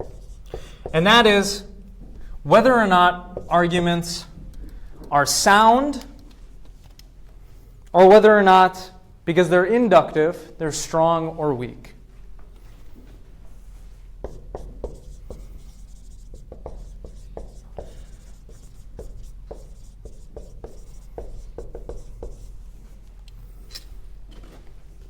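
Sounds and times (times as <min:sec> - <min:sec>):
taps and scratches writing on board: 0:00.0 - 0:02.3, 0:03.3 - 0:05.1, 0:14.2 - 0:22.6
steady low hum: 0:00.0 - 0:25.0.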